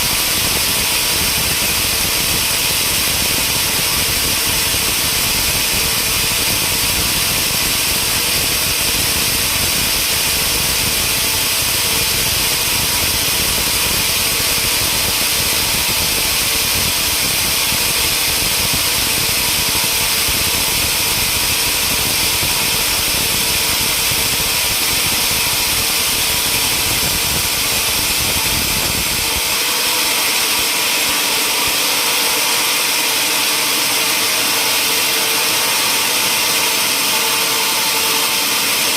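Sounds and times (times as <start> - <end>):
sawmill machinery whirring: 0.0 - 38.9.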